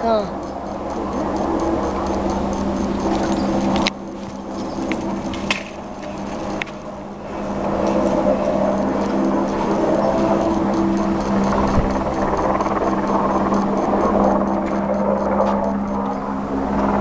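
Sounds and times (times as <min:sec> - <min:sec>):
helicopter hovering: 0:00.0 - 0:17.0
sharp clicks: 0:00.0 - 0:17.0.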